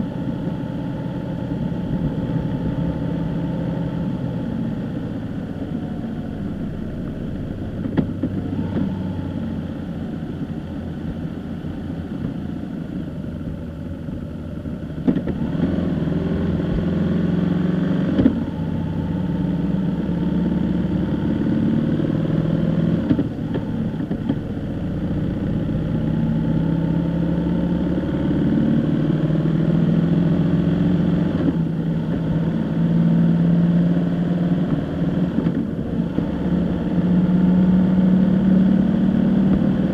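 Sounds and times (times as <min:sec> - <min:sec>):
car engine: 0:00.0 - 0:39.9
road noise: 0:00.0 - 0:39.9.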